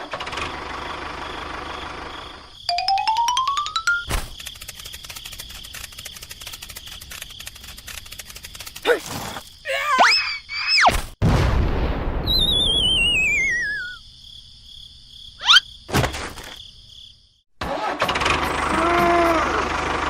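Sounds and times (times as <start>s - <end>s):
engine-like running sound: 0.0s - 2.4s, 17.6s - 20.0s
falling wobbling whistle: 12.2s - 14.0s.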